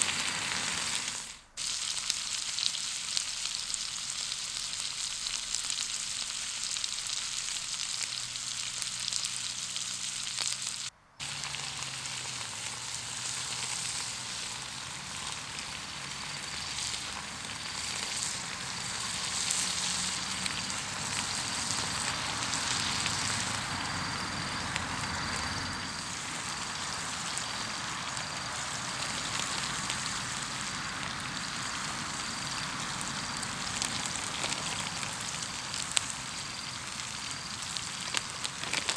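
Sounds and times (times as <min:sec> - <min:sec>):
food sizzling in a pan: 0:00.0 - 0:38.9.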